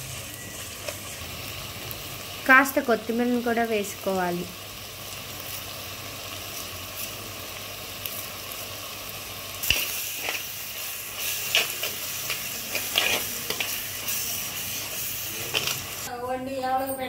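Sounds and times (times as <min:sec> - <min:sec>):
masala sizzling in a pot: 0:00.0 - 0:17.0
steel spoon stirring and scraping: 0:09.6 - 0:16.1.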